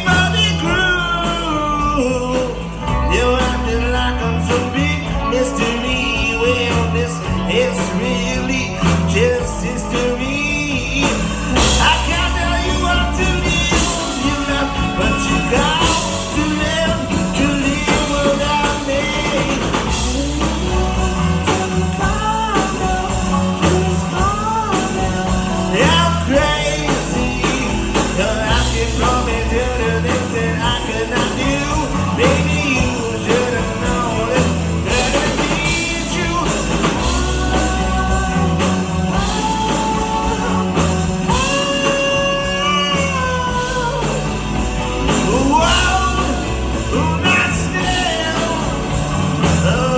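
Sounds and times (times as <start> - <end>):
live rock band music: 0.0 - 49.9.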